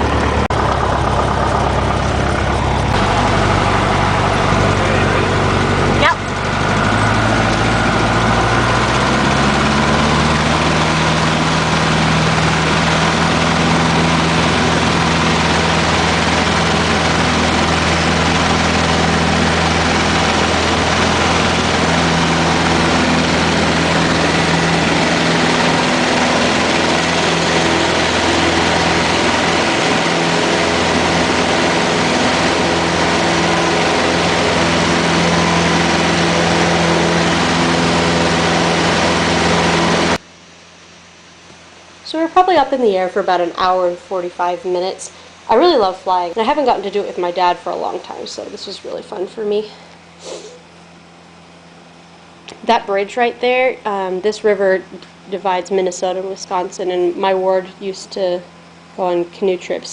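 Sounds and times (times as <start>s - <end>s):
airplane engine and propeller drone: 0.0s - 59.9s.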